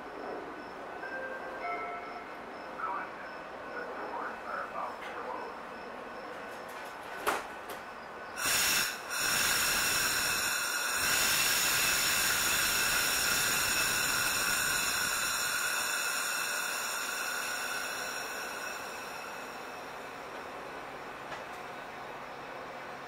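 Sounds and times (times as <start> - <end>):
train hissing: 8.3 - 23.0.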